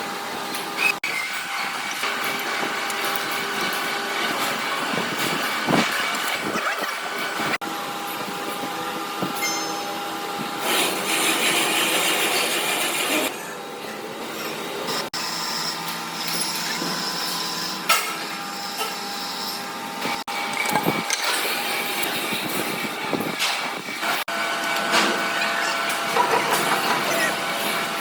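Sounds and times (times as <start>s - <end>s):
workshop machinery running: 0.0s - 28.0s
machine whining tones: 9.0s - 28.0s.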